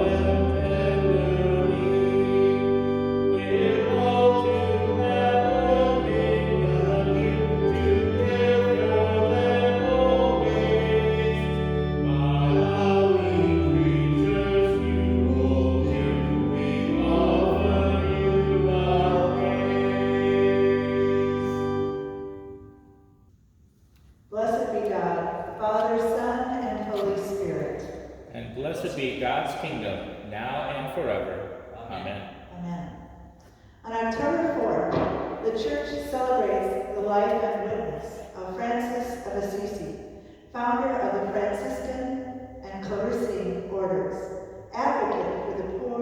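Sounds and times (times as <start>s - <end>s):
slow sacred music: 0.0s - 24.3s.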